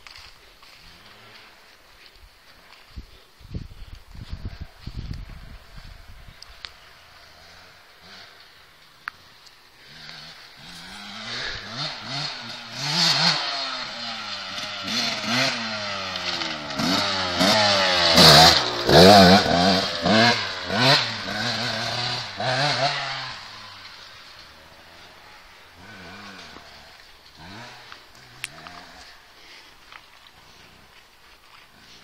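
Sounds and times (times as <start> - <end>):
dirt bike engine revving: 0.7 - 1.7, 5.4 - 9.0, 9.7 - 29.6.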